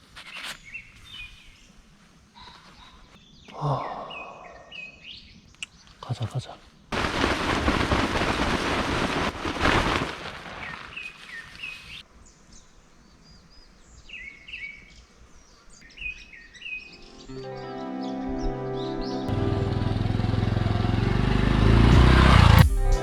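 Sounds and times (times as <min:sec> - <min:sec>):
small birds chirping: 0:00.0 - 0:06.9, 0:10.6 - 0:19.3
music: 0:16.9 - 0:23.0.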